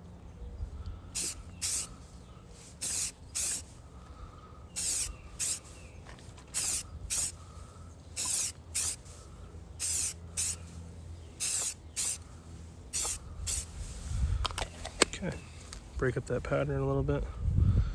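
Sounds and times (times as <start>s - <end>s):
spray paint can hissing: 1.2s - 2.0s, 2.7s - 3.8s, 4.8s - 7.5s, 8.2s - 9.2s, 9.8s - 14.1s.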